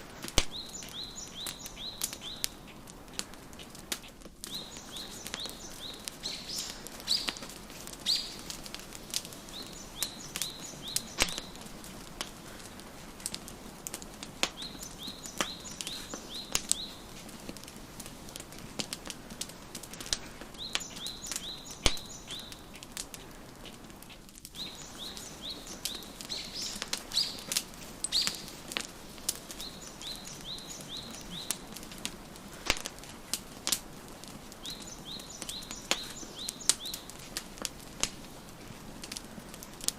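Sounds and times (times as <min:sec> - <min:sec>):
wood fire crackling and popping: 0:00.0 - 0:39.9
songbird singing high notes: 0:08.0 - 0:08.5, 0:09.5 - 0:11.6, 0:20.6 - 0:22.6, 0:24.6 - 0:28.5, 0:29.6 - 0:31.7.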